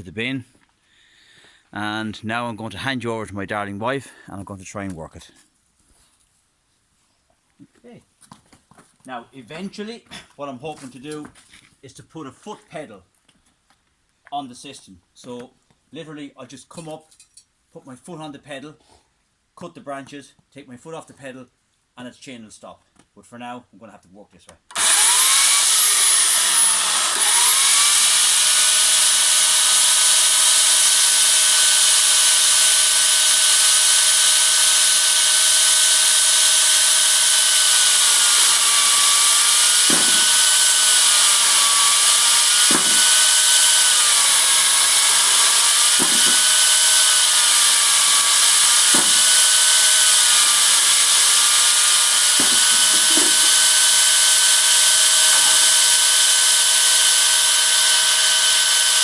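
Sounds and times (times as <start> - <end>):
chainsaw cutting branches: 24.7 - 59.0.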